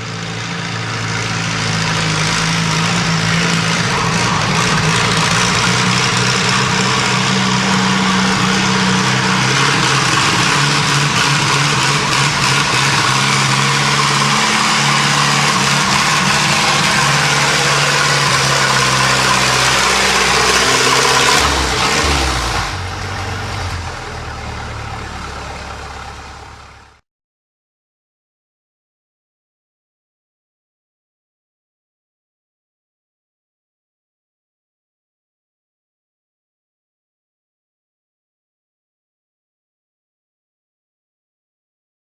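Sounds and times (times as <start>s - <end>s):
tractor engine running under load: 0.0s - 27.0s.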